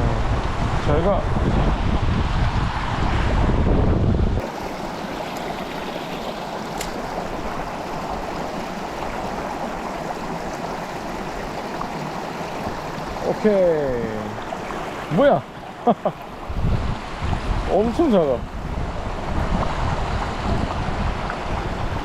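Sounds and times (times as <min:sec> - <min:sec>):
stream water flowing: 0:04.4 - 0:22.0.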